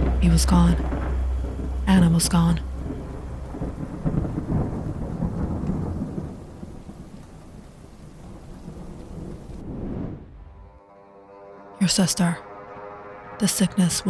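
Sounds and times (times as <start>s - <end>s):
steady rain: 0.0s - 10.2s
thunder rumbling: 0.0s - 10.8s.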